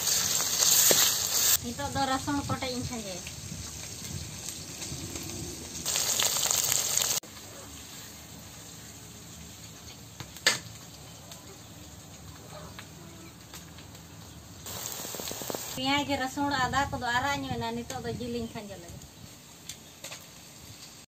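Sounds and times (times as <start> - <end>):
loud sizzle of paste in hot pan: 0.0 - 12.4, 14.6 - 17.1, 18.0 - 21.0
chicken frying in oil: 0.0 - 15.8.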